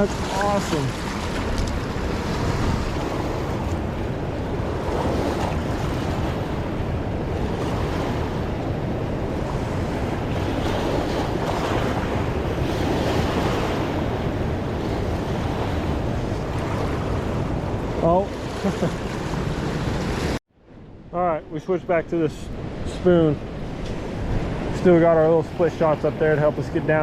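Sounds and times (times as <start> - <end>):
river rushing: 0.0 - 20.4.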